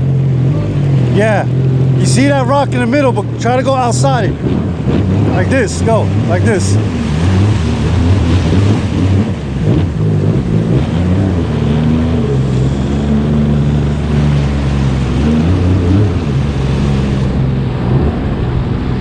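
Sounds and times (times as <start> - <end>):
jet ski engine at low speed: 0.0 - 19.0.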